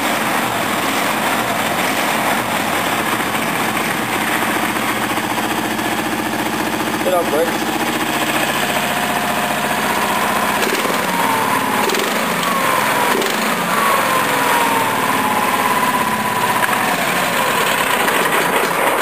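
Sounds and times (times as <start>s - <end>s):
mower engine running: 0.0s - 19.0s
whine sliding down in pitch: 7.2s - 18.2s.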